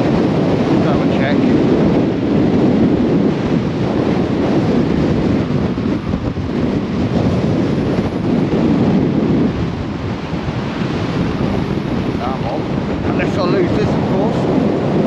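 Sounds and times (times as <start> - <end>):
storm wind buffeting microphone: 0.0 - 15.0.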